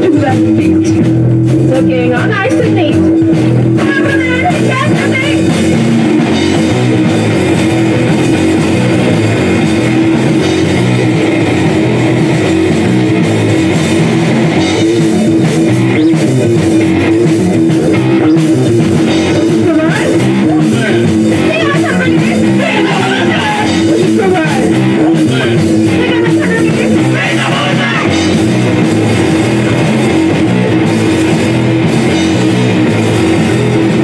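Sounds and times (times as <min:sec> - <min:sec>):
distorted electric guitar: 0:00.0 - 0:34.0
drum kit playing: 0:00.0 - 0:34.0
person singing: 0:19.2 - 0:28.3.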